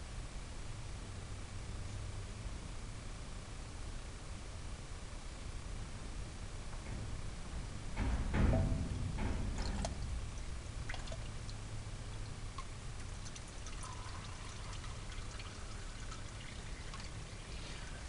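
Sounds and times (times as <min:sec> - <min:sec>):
engine oil pouring and trickling: 0:09.6 - 0:18.0.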